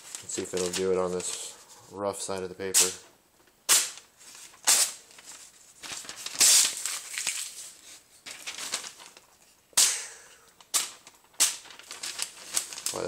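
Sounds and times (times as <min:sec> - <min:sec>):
paper rustling: 0:00.0 - 0:03.0, 0:03.7 - 0:09.6, 0:10.6 - 0:13.0.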